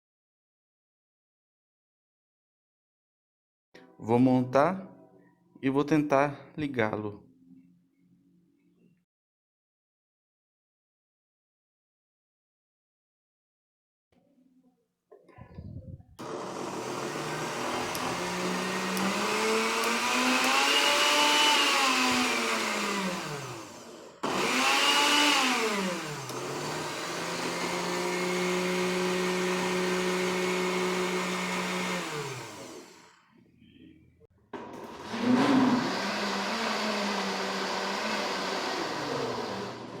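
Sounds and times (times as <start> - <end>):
blender motor spinning: 16.2 - 33.2, 34.8 - 40.0.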